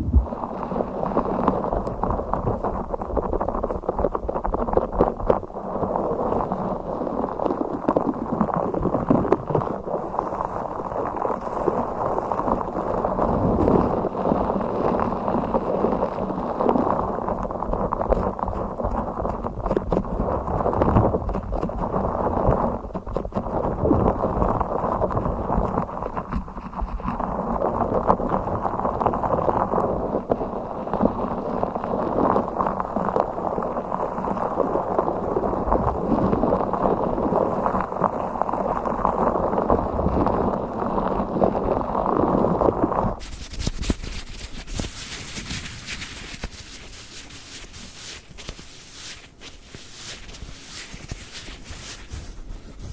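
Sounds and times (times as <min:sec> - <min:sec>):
toy rubbing and scratching: 0:43.2 - 0:52.9.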